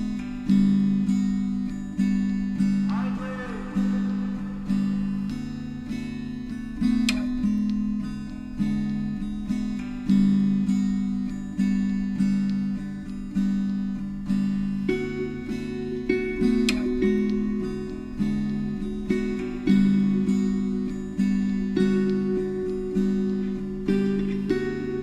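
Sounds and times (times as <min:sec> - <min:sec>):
plucked acoustic guitar music: 0:00.0 - 0:25.0.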